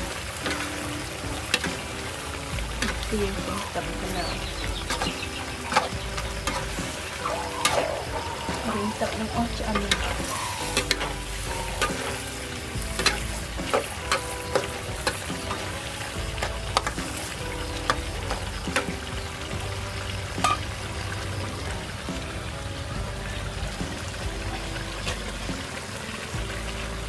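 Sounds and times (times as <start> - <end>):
meat frying and sizzling: 0.0 - 27.0.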